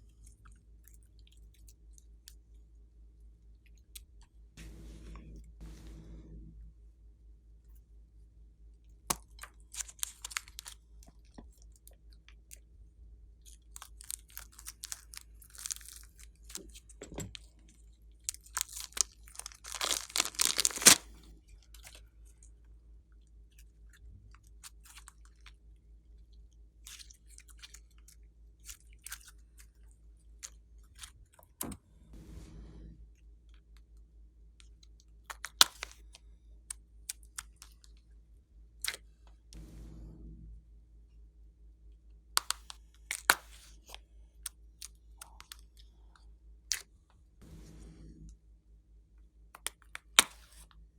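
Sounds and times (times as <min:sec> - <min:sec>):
slime squished by hand: 0:18.3 - 0:21.1.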